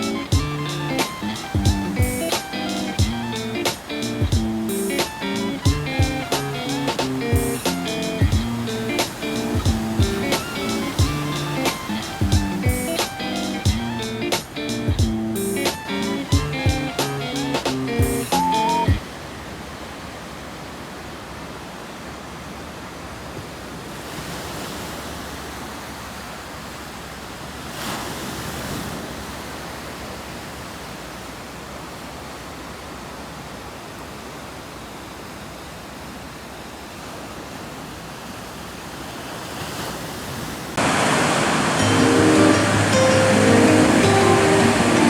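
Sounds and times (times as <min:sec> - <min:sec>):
music: 0:00.0 - 0:19.0, 0:41.6 - 0:45.0
ocean waves breaking: 0:00.0 - 0:22.4, 0:23.0 - 0:45.0.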